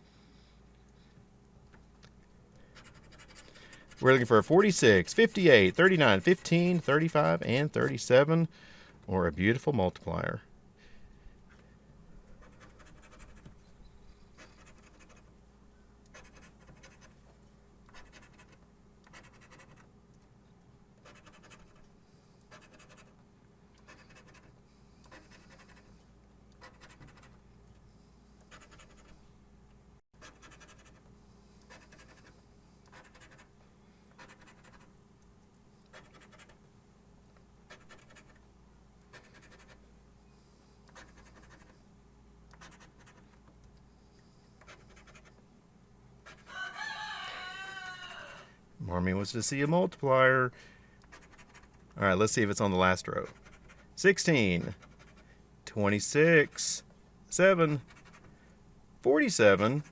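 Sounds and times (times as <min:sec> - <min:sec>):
lottery ticket being scratched: 0:02.6 - 0:08.3, 0:12.4 - 0:13.5, 0:16.1 - 0:17.2, 0:17.9 - 0:19.8, 0:21.0 - 0:21.9, 0:22.5 - 0:23.2, 0:31.6 - 0:33.5, 0:35.9 - 0:36.6, 0:37.7 - 0:38.4, 0:40.9 - 0:41.8, 0:42.5 - 0:43.4, 0:51.1 - 0:58.4, 0:59.1 - 0:59.9.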